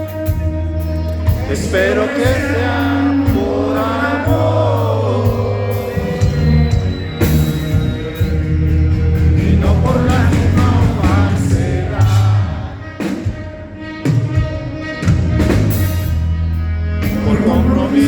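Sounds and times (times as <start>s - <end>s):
live rock band playing: 0.0s - 18.0s
person singing: 1.3s - 6.6s, 9.4s - 13.1s.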